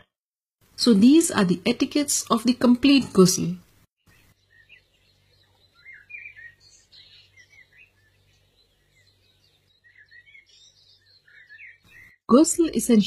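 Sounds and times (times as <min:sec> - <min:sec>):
faint songbird chirping: 0:04.0 - 0:13.0.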